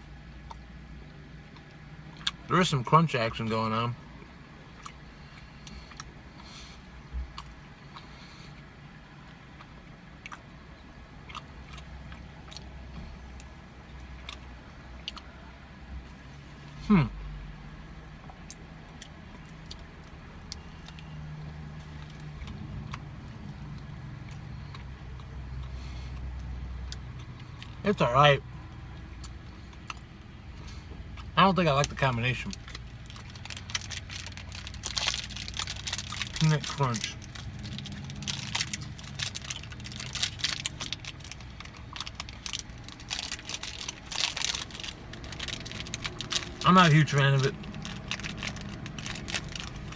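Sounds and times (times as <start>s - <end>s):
low steady hum: 0.0s - 49.9s
crunchy chewing: 4.2s - 8.6s, 11.2s - 16.3s, 29.0s - 49.9s.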